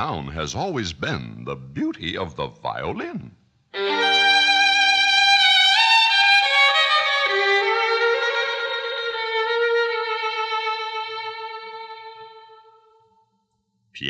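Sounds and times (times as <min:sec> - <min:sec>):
solo violin melody: 0:03.8 - 0:13.0.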